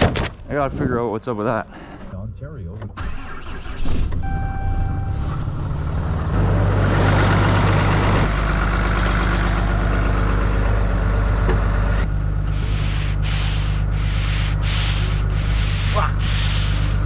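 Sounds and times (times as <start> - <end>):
truck engine humming: 1.4 - 17.0
short chime-like tone: 4.3 - 5.2.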